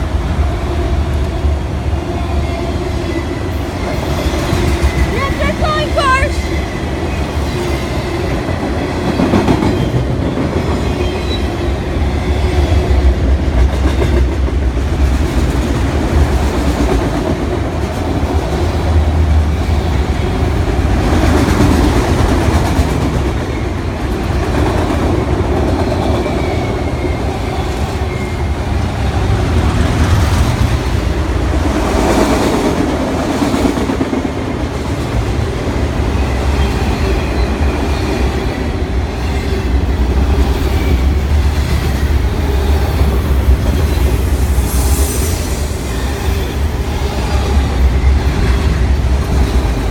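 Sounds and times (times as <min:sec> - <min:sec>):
freight train rumbling past: 0:00.0 - 0:49.9.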